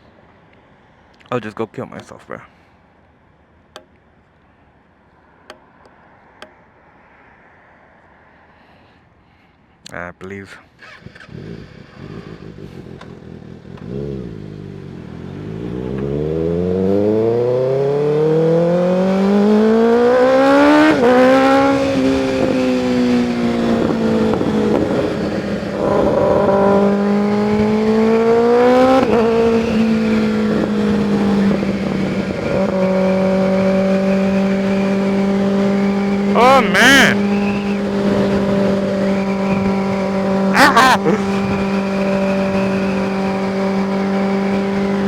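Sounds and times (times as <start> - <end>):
motorcycle engine accelerating: 10.8 - 45.0.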